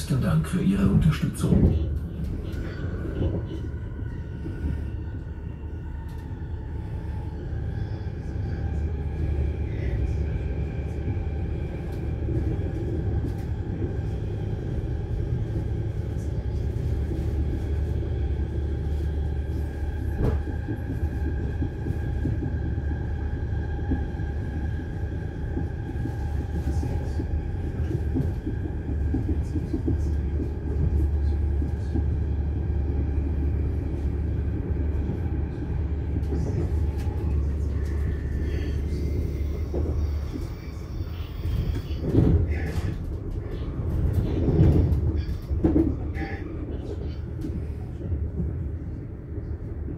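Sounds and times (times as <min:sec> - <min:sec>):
low rumble of train wheels: 0:00.0 - 0:49.9.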